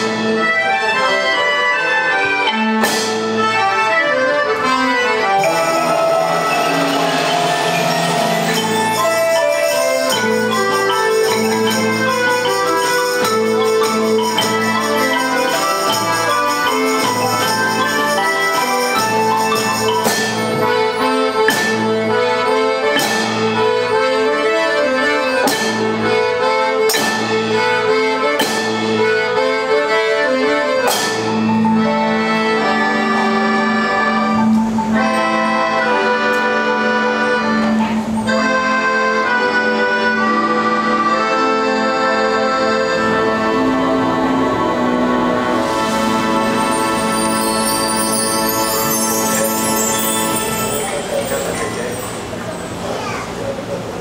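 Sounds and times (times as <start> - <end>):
accordion chords: 0.0 - 54.0
percussion: 0.0 - 54.0
xylophone melody: 5.2 - 21.9, 43.2 - 52.1
sharp percussion strikes: 5.2 - 23.9, 25.4 - 26.0, 26.9 - 29.0, 30.8 - 31.8, 44.9 - 52.5.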